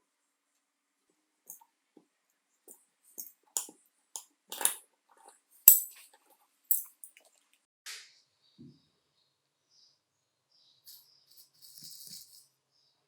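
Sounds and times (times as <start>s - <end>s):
hand tools clicking: 5.7s - 6.0s, 6.7s - 7.1s.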